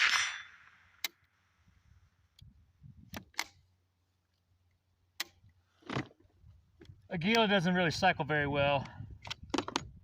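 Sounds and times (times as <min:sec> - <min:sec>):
faint rifle mechanical clicks: 0:03.1 - 0:05.6.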